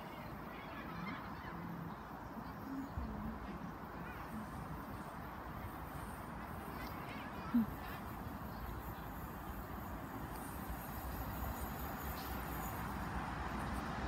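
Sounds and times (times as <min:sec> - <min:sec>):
train approaching low rumble: 0:07.6 - 0:14.0.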